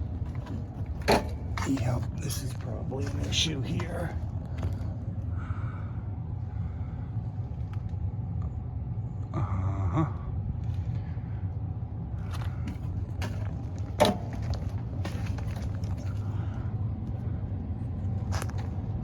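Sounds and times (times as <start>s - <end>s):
rustling and scraping in crawl space: 0.0s - 5.3s, 10.6s - 19.0s
steady low hum: 0.0s - 19.0s.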